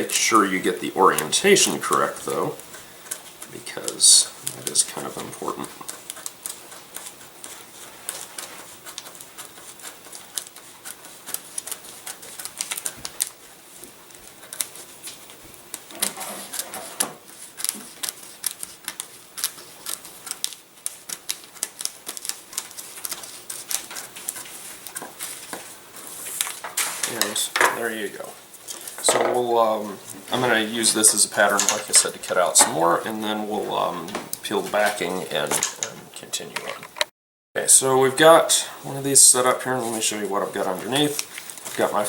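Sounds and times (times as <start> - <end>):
blade cutting plastic film: 0.0 - 27.4.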